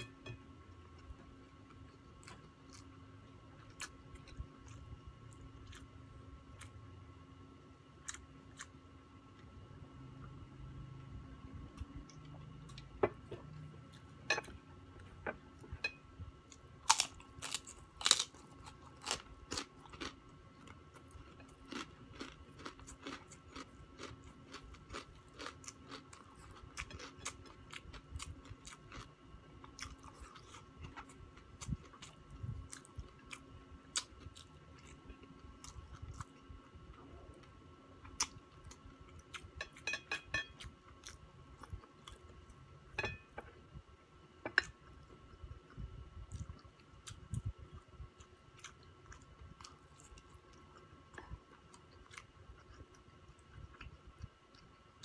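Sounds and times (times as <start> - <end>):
crunching crispy pork crackling: 16.6 - 36.6.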